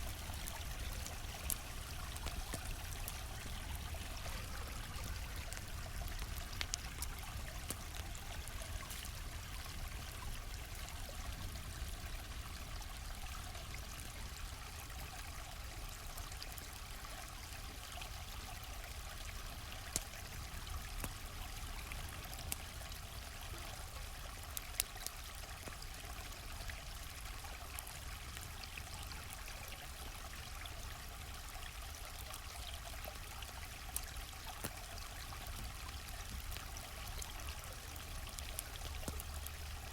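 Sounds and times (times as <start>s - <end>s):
campfire pops: 0.0s - 10.5s, 33.9s - 39.9s
stream flowing: 0.0s - 39.9s.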